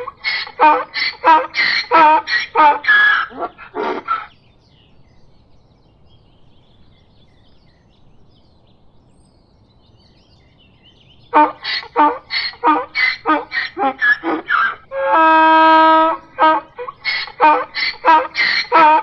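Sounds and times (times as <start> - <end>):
donkey braying: 0.0 - 4.3, 11.3 - 19.0.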